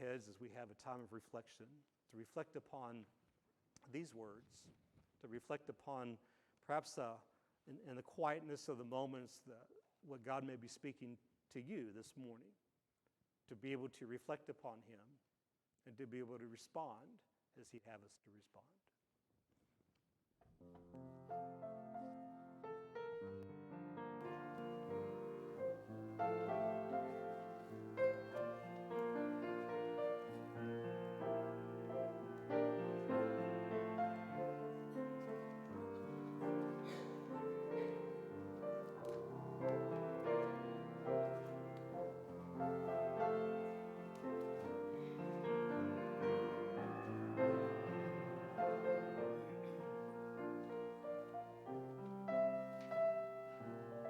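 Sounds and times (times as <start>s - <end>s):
soft slow piano music: 20.8s - 54.0s.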